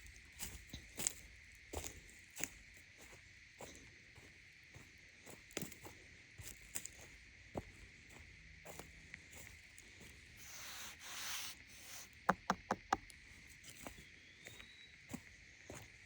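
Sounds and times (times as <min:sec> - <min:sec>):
footsteps on woodland trail: 0:00.0 - 0:16.0
insect drone: 0:00.0 - 0:16.0
brushing through vegetation: 0:10.4 - 0:12.1.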